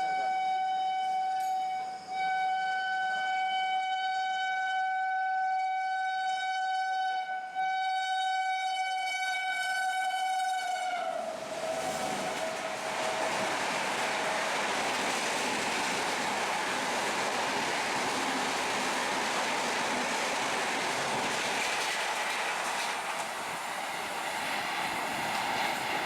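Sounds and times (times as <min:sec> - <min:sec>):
locomotive horn blasts: 0:00.0 - 0:13.5
rush of passing train: 0:07.2 - 0:26.0.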